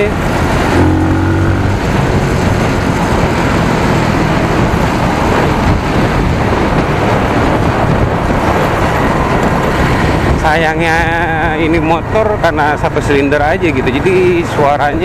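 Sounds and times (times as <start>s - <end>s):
motorcycle engine running: 0.0s - 10.2s
wind rush: 0.0s - 12.4s
road noise: 0.0s - 15.0s.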